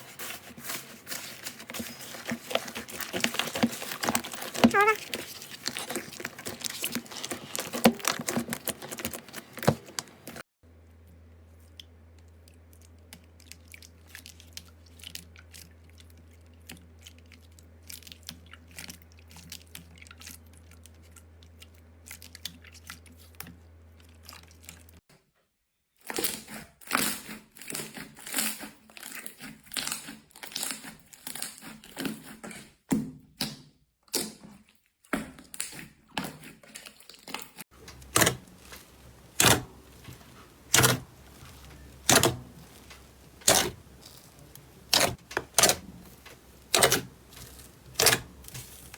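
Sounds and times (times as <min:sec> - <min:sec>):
slime crackling and squishing: 0:00.0 - 0:10.4, 0:37.8 - 0:48.9.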